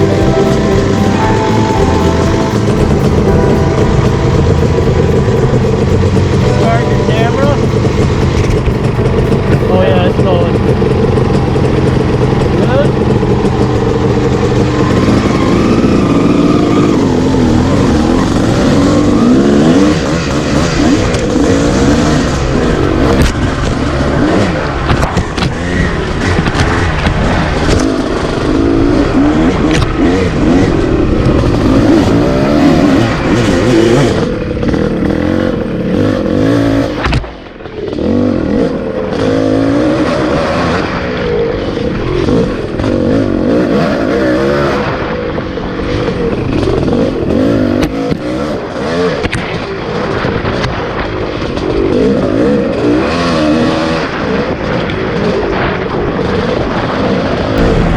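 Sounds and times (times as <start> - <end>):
dirt bike engine revving: 0.0 - 45.1, 57.6 - 57.9.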